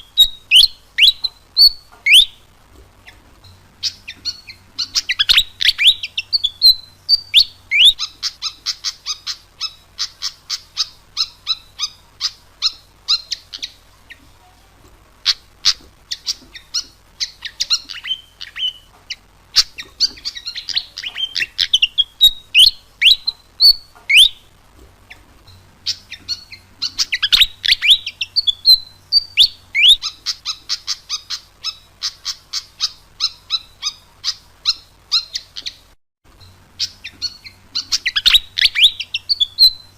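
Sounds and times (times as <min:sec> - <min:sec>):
bird singing sharp chirps: 0:00.0 - 0:02.5, 0:03.8 - 0:13.8, 0:19.6 - 0:24.5, 0:25.9 - 0:35.9, 0:36.8 - 0:39.9.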